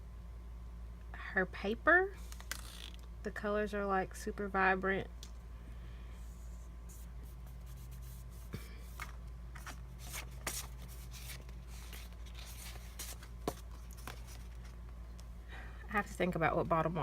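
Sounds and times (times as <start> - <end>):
low electrical hum: 0.0 - 17.0
paper rustling and crinkling: 7.7 - 14.8.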